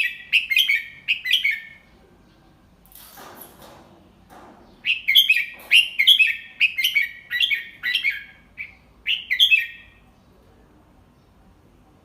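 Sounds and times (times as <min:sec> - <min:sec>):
bird chirping song: 0:00.0 - 0:02.8, 0:04.3 - 0:11.9.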